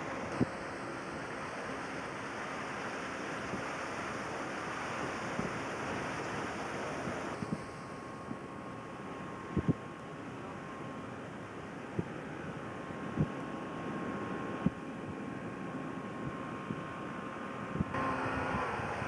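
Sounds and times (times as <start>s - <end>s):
wind and water rushing: 17.9s - 19.0s.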